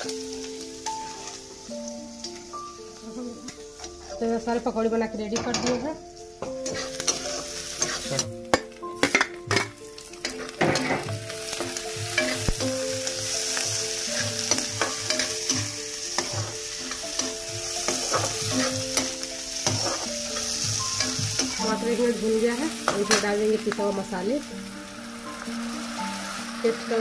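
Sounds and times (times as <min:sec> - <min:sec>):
vegetables sizzling in hot oil: 0:00.0 - 0:27.0
spatula scraping pan: 0:06.6 - 0:08.3, 0:13.6 - 0:21.8.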